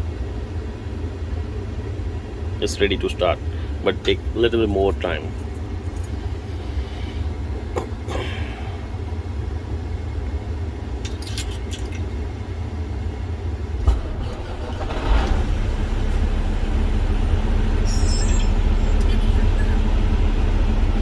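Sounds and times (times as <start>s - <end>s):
diesel truck engine rumble: 0.0s - 21.0s
engine catching thump: 13.8s - 21.0s.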